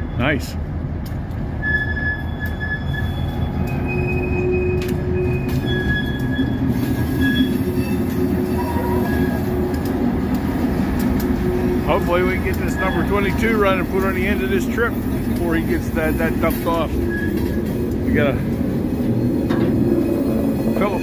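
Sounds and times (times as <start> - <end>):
freight train rumbling past: 0.0 - 21.0
high-pitched wheel squeals: 1.6 - 9.7, 11.8 - 14.9, 15.5 - 21.0.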